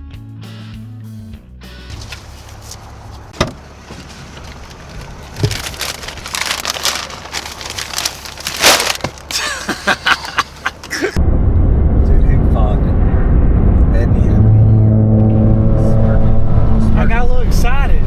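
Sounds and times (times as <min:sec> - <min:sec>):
road and engine noise: 0:01.6 - 0:18.0
rustling and knocks: 0:02.0 - 0:09.3.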